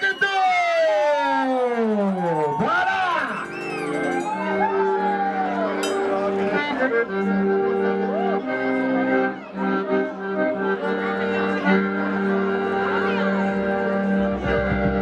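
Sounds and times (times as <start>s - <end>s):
live band playing: 13.0s - 15.0s.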